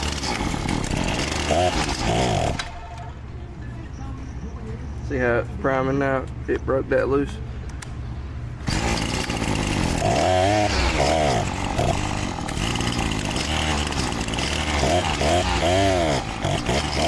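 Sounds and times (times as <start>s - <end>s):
trimmer engine revving: 0.0s - 3.0s, 8.6s - 17.0s.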